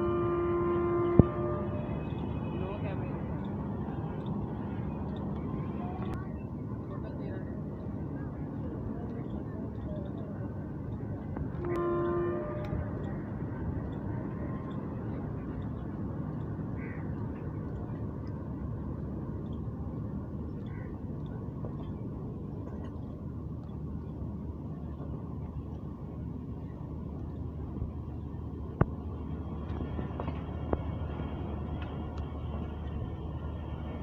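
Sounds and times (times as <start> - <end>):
train horn blast: 0.0 - 2.6, 11.6 - 13.0
train rumbling on rails: 0.0 - 34.0.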